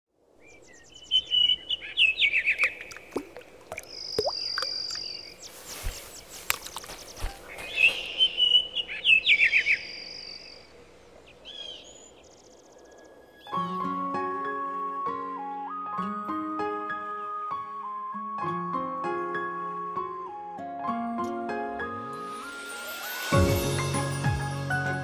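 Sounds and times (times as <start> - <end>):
bird chirping phrase: 0.4 - 3.0, 3.8 - 10.7.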